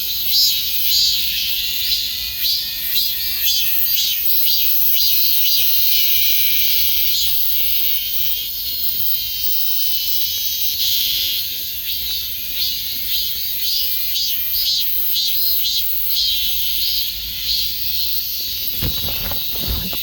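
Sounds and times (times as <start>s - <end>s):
cicadas buzzing: 10.4s - 20.0s.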